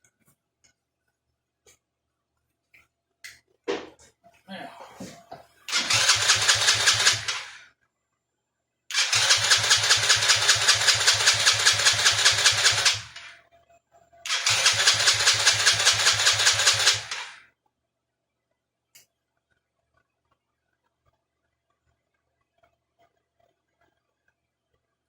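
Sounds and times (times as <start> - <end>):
engine cranking with electric starter: 5.7 - 7.6, 8.9 - 13.3, 14.3 - 17.4.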